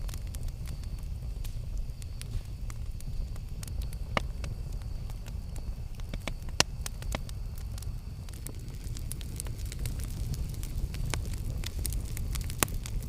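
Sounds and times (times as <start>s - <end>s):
campfire rumbling: 0.0s - 13.0s
fire crackles and pops: 0.0s - 13.0s.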